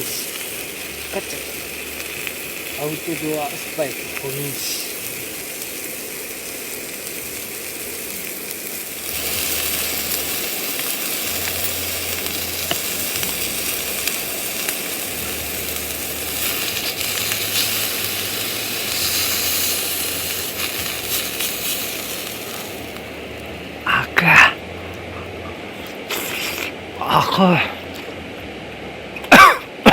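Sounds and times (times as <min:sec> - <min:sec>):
food sizzling on a grill: 0:00.0 - 0:24.6.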